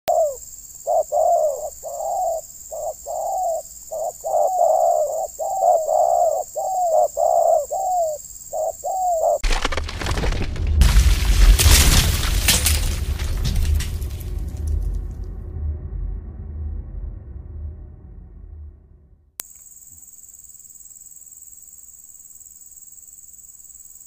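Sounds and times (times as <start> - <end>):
dove cooing: 0.1 - 9.4
sudden loud noisy sound: 9.4 - 19.4.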